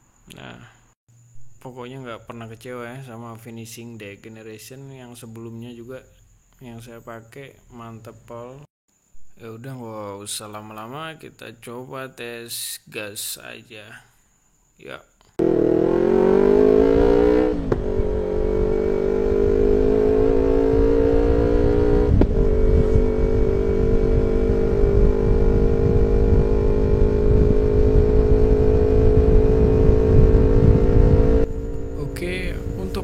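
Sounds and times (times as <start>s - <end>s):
motorcycle engine running: 15.4s - 33.0s.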